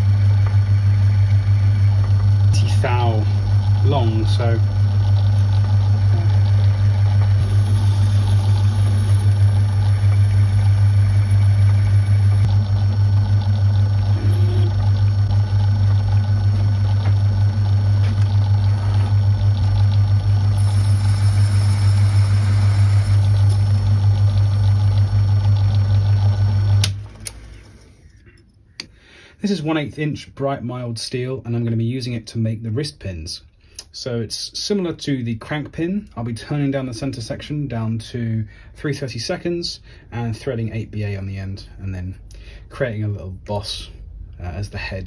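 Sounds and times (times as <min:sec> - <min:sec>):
drill boring into metal: 0:00.0 - 0:12.9, 0:13.7 - 0:26.9
lathe motor humming: 0:00.0 - 0:28.0.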